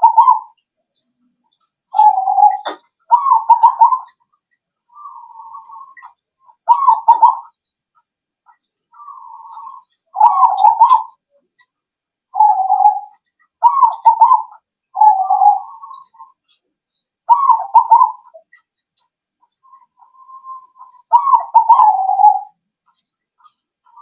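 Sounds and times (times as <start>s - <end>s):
dove cooing: 0.0s - 0.6s, 1.9s - 4.2s, 4.9s - 7.5s, 9.0s - 11.2s, 12.3s - 16.4s, 17.3s - 18.5s, 19.7s - 22.6s.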